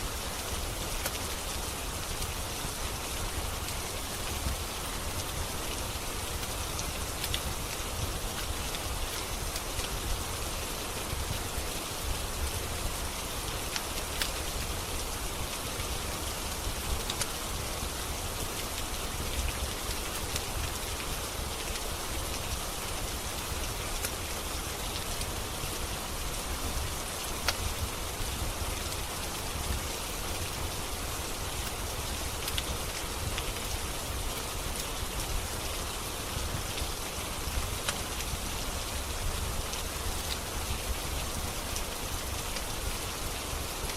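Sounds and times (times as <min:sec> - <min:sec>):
steady rain: 0:00.0 - 0:43.9
wood fire crackling and popping: 0:32.4 - 0:33.8.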